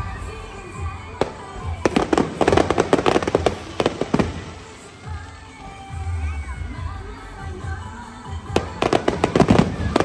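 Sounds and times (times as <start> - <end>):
fireworks bangs and crackles: 0.0 - 6.2, 8.3 - 10.0.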